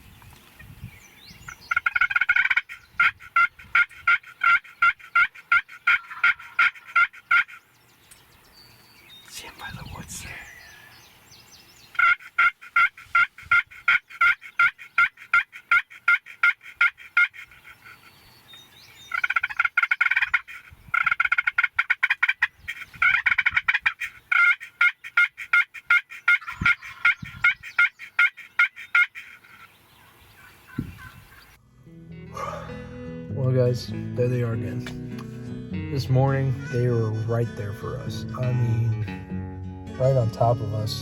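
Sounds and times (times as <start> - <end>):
wild turkeys calling: 0.4 - 31.6.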